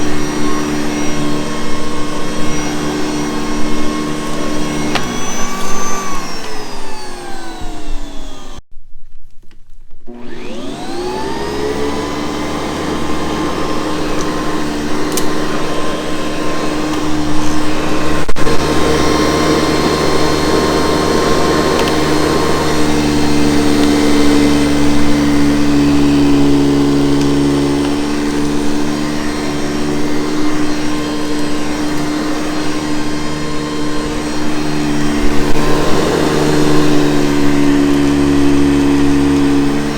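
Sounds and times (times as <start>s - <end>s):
vacuum cleaner motor: 0.0s - 8.6s, 10.0s - 39.9s.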